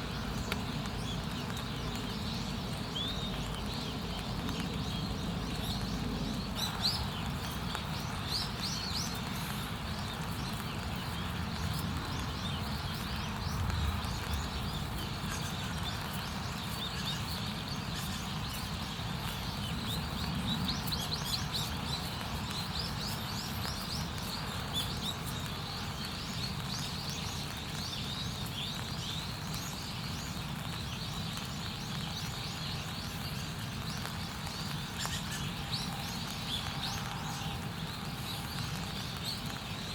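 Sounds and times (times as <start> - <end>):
faint crackles: 0.0 - 39.9
small birds chirping: 0.0 - 39.9.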